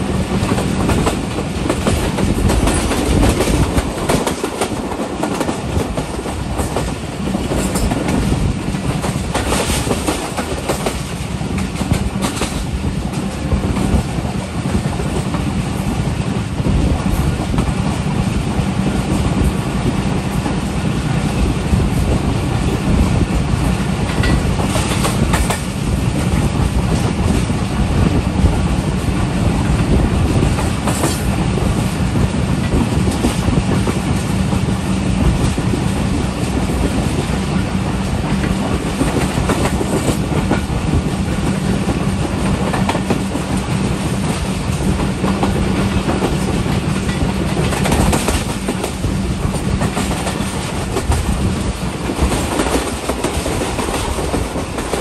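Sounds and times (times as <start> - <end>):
train wheels rumbling on rails: 0.0 - 55.0
wheels clacking over rail joints: 0.2 - 15.9, 32.6 - 55.0.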